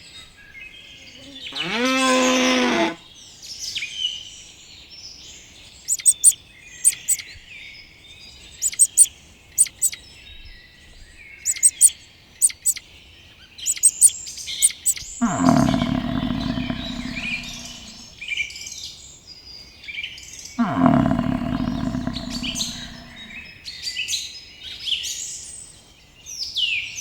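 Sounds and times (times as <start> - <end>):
cow mooing: 1.5 - 3.0, 15.2 - 18.1, 20.6 - 23.4
small birds chirping: 5.5 - 18.2, 20.6 - 23.6.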